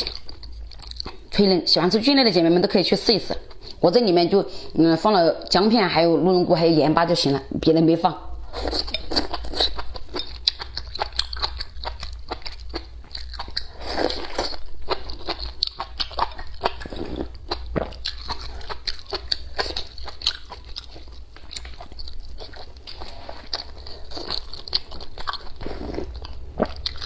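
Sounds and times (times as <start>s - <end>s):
person chewing crisp food: 0.0s - 1.3s, 8.4s - 27.0s.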